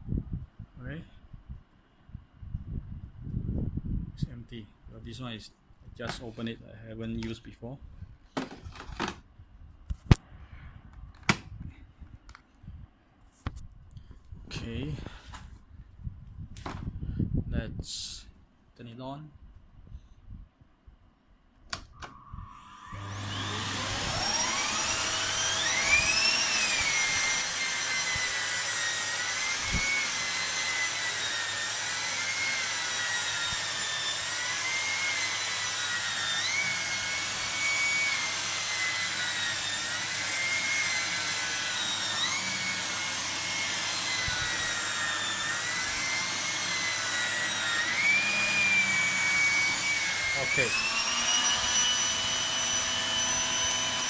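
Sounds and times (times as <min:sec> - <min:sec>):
vacuum cleaner motor whine: 0:22.0 - 0:54.0.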